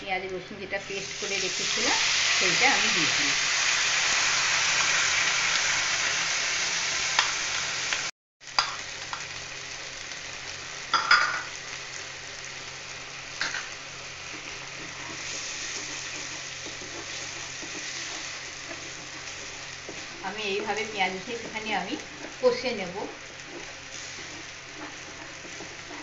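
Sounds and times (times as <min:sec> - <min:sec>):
paste sizzling in hot oil: 0:00.8 - 0:26.0
wooden spatula knocking and scraping: 0:14.3 - 0:26.0.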